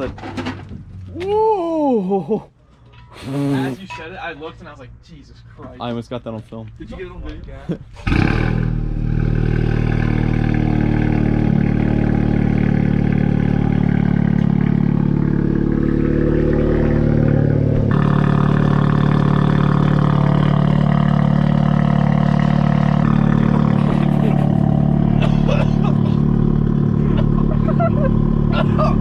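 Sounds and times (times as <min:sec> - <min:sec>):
car exhaust drone: 0:08.0 - 0:29.0.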